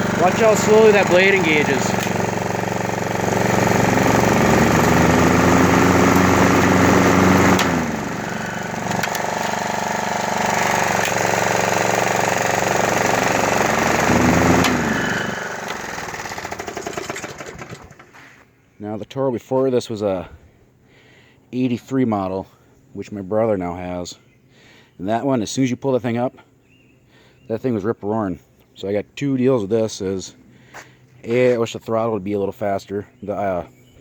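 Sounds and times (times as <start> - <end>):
lawn mower engine running: 0.0 - 18.3
mower blade spinning up: 0.0 - 18.3.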